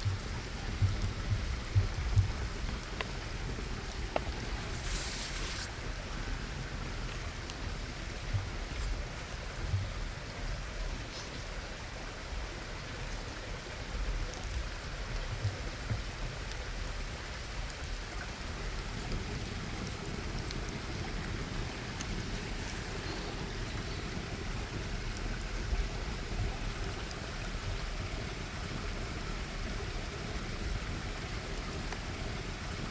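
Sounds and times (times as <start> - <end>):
fire crackling: 0.0 - 9.6, 16.8 - 32.9
food sizzling in a pan: 4.1 - 5.7.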